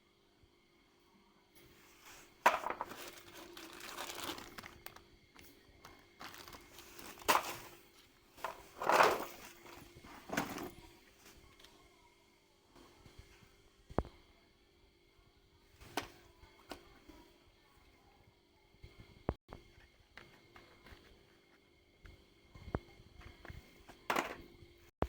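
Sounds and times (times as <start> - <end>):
rustling and crinkling: 1.7 - 11.7.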